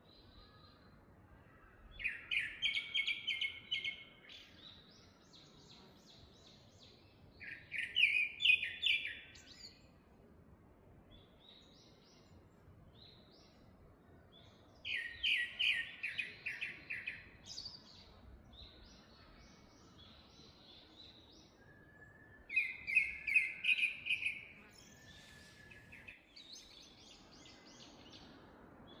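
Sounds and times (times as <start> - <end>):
faint bird chirps: 0.0 - 10.0, 11.1 - 29.0
bird song of rapid repeated notes: 0.0 - 10.1, 11.0 - 29.0.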